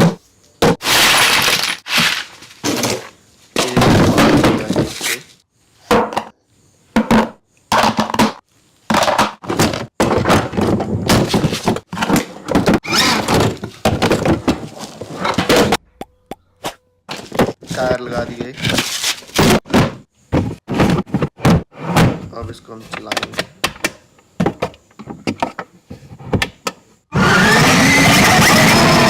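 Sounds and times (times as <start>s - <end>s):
scraping and rustling: 0.7s - 5.4s, 8.9s - 15.8s, 16.6s - 22.6s.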